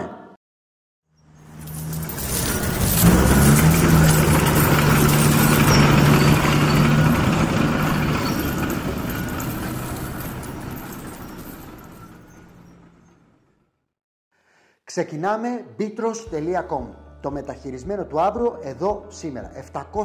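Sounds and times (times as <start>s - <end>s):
car engine running: 1.6s - 12.7s.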